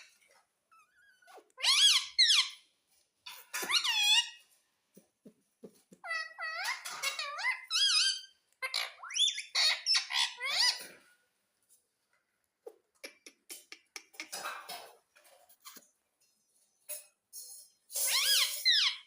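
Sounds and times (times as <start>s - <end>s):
parakeet squawking: 0.7s - 2.6s, 3.5s - 4.4s, 6.0s - 11.0s.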